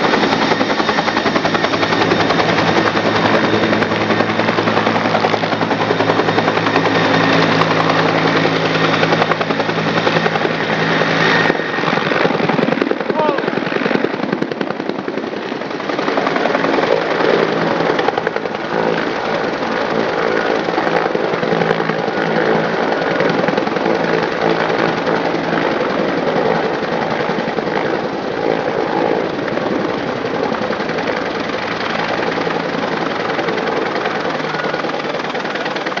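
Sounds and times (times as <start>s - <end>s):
helicopter engine whine: 0.0s - 36.0s.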